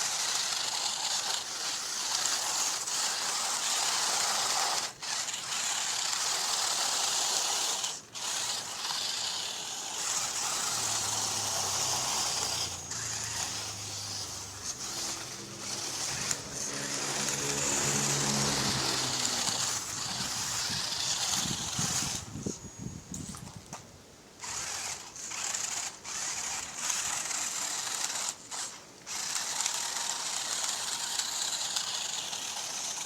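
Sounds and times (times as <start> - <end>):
electric motor gritty whir: 0.0 - 23.8, 24.4 - 33.0.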